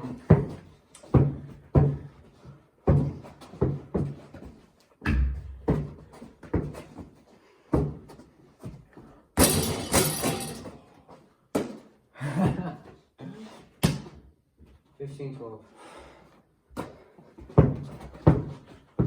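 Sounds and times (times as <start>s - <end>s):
basketball bouncing on hard floor: 5.0s - 6.8s, 17.4s - 19.0s
loud clattering crash: 9.4s - 10.6s.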